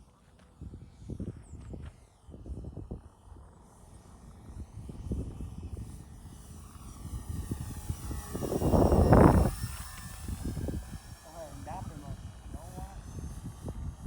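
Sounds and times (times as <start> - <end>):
model plane electric motors whining: 0.0 - 14.0
wind buffeting microphone: 4.4 - 14.0.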